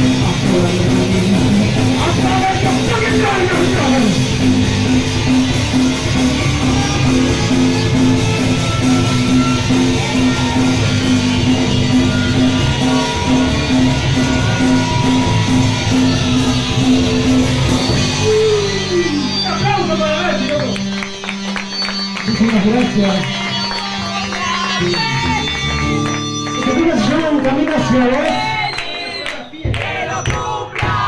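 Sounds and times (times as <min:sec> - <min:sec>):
punk band playing live: 0:00.0 - 0:31.0.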